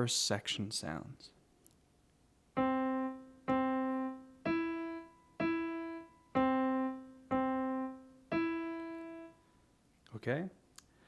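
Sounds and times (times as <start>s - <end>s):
slow piano melody: 2.6s - 9.5s.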